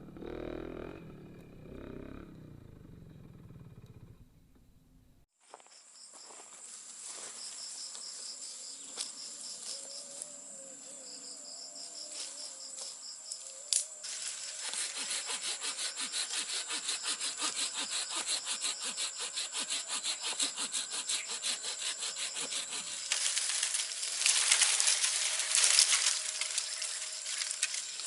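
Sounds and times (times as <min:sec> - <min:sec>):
insects droning and chirping: 0:05.4 - 0:28.0
saw cutting wood: 0:14.2 - 0:27.8.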